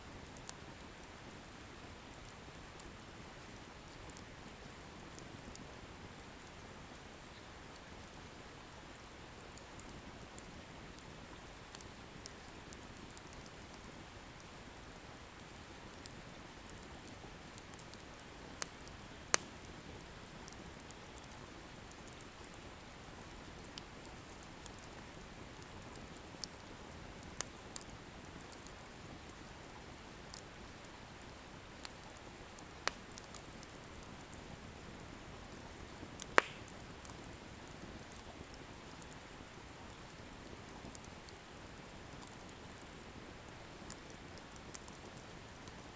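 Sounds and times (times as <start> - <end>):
wood bonfire hissing: 0.0 - 45.9
firewood popping and crackling: 17.7 - 22.0, 31.8 - 34.0, 35.5 - 39.2.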